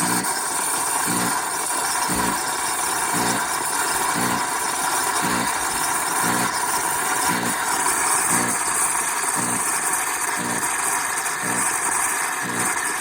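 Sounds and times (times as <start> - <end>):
low pulsing buzz: 0.0 - 0.3, 1.0 - 1.4, 2.1 - 2.4, 3.1 - 3.5, 4.2 - 4.5, 5.2 - 5.6, 6.2 - 6.6, 7.2 - 7.6, 8.3 - 8.7, 9.4 - 10.8, 11.4 - 11.8, 12.4 - 12.8
espresso machine hissing: 0.0 - 13.0.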